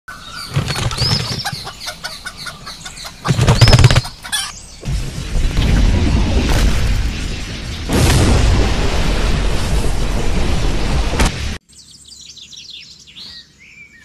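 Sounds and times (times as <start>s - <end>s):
chicken squawking: 0.2s - 4.6s
chicken flapping wings: 0.4s - 2.1s, 3.0s - 4.5s
low rumbling noise: 4.5s - 11.6s.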